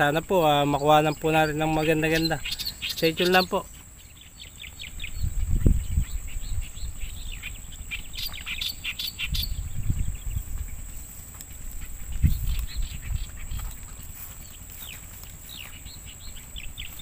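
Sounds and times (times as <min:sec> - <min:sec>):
small birds chirping: 0:00.0 - 0:17.0
low rumbles: 0:03.8 - 0:17.0.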